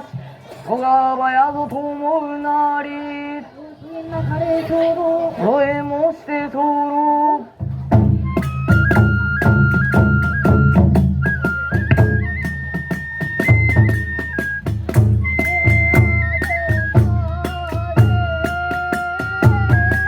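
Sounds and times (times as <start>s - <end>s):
fast steady drum beat: 7.7s - 20.0s
bamboo flute melody with trills: 8.0s - 20.0s.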